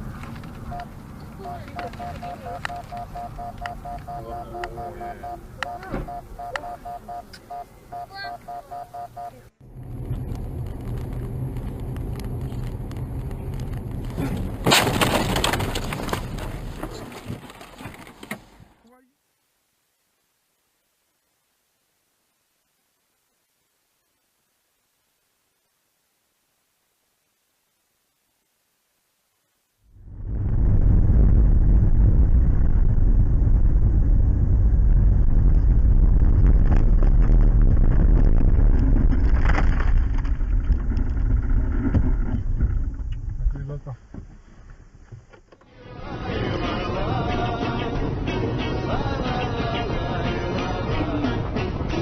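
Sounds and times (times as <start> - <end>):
road and engine rumble: 0.0 - 18.8, 29.8 - 52.0
car crash: 13.6 - 18.5, 30.0 - 43.4
crunching and breaking glass: 14.2 - 16.5.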